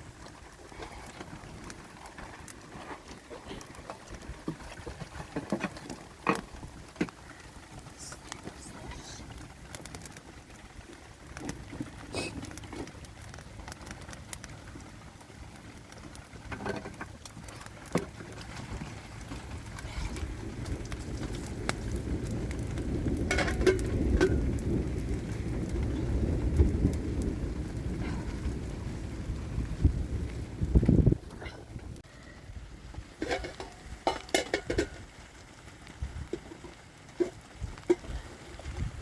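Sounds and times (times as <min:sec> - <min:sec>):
rain falling: 0:00.0 - 0:39.0
low rumble: 0:14.6 - 0:33.1.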